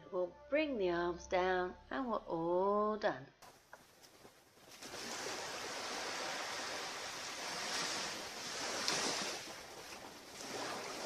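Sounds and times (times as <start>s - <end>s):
ocean surf on beach: 4.8s - 11.0s.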